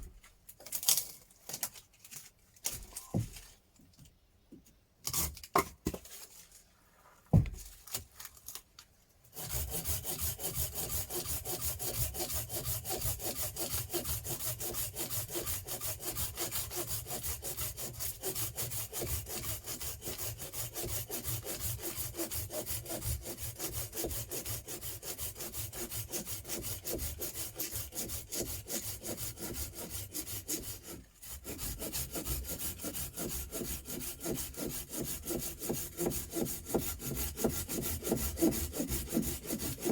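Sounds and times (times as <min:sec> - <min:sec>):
hand saw cutting wood: 0:09.3 - 0:39.9.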